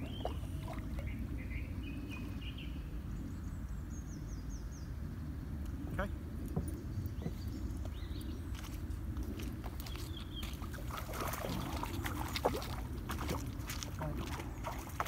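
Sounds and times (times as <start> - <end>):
low outdoor rumble: 0.0 - 15.0
small birds chirping: 5.9 - 8.9, 9.8 - 10.8.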